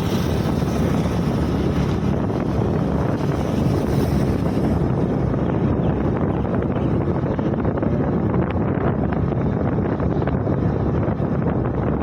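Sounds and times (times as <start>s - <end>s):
scooter engine: 0.0s - 6.8s
road noise: 0.0s - 12.0s
wind rush on microphone: 0.0s - 12.0s.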